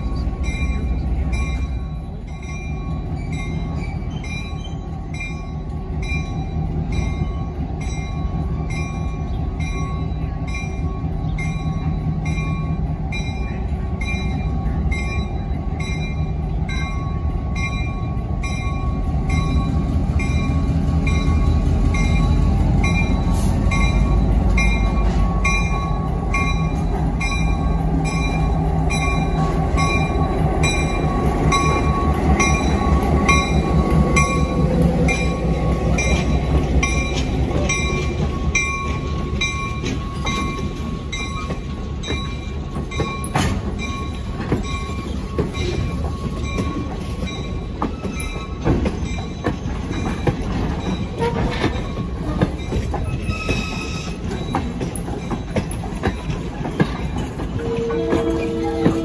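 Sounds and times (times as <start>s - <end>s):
diesel locomotive rumbling: 0.0s - 59.0s
locomotive bell ringing: 0.0s - 59.0s
train wheels clicking over rail joints: 0.0s - 59.0s.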